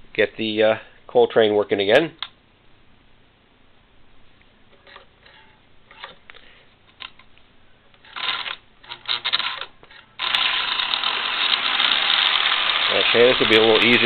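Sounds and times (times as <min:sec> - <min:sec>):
model train running on track: 0:11.2 - 0:14.0.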